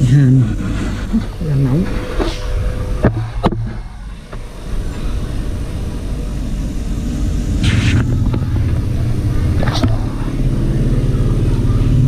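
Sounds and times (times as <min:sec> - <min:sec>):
gas torch flame rushing: 0:00.0 - 0:12.0.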